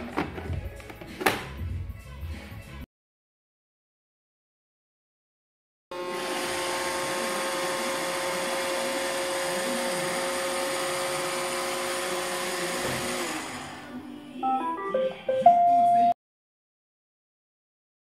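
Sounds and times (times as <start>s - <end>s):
robot vacuum running: 6.0s - 14.0s.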